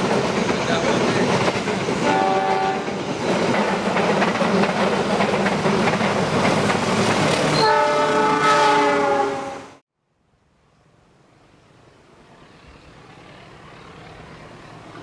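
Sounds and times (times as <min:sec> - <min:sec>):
train carriages rushing past: 0:00.0 - 0:09.8
train horn: 0:02.0 - 0:02.9, 0:07.5 - 0:09.8.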